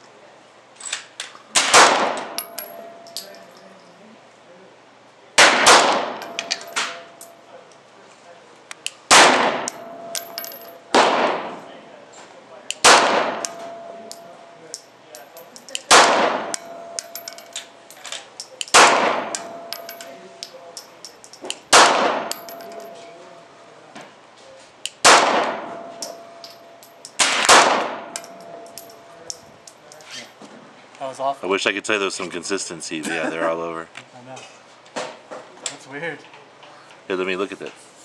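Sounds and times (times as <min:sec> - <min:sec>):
pistol shots: 0:01.6 - 0:02.4, 0:05.4 - 0:07.0, 0:09.1 - 0:09.8, 0:10.9 - 0:11.6, 0:12.7 - 0:13.7, 0:15.9 - 0:17.1, 0:18.6 - 0:19.7, 0:21.7 - 0:22.5, 0:25.0 - 0:25.7, 0:27.2 - 0:28.2.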